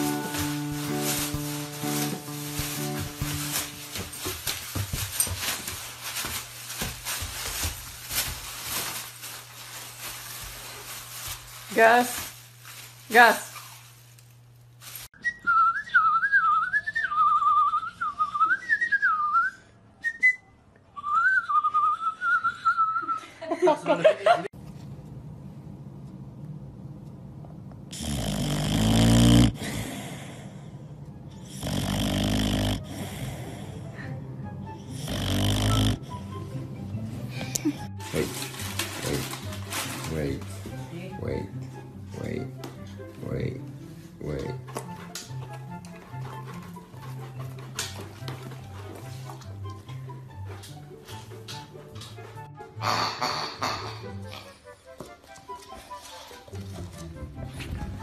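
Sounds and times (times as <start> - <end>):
plastic bag crinkling: 0.0 - 15.1, 38.0 - 40.6
dog snoring: 27.9 - 30.8, 31.4 - 34.0, 34.7 - 36.4.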